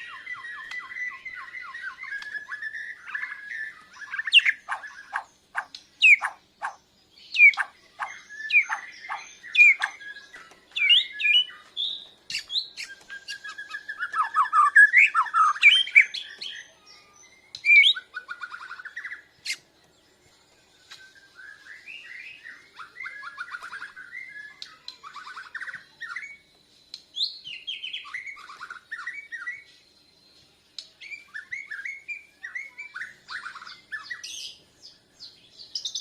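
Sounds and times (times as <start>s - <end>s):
songbird singing whistled song: 0.0s - 36.0s.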